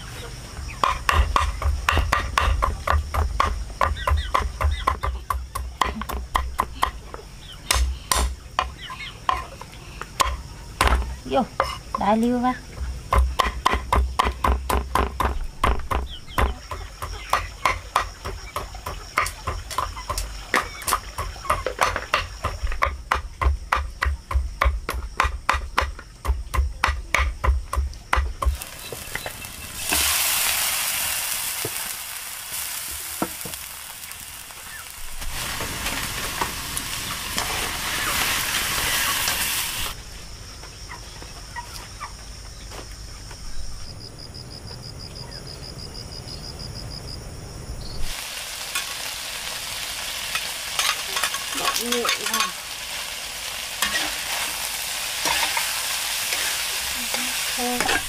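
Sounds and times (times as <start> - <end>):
food frying in a hot pan: 28.4 - 40.0, 48.0 - 58.0.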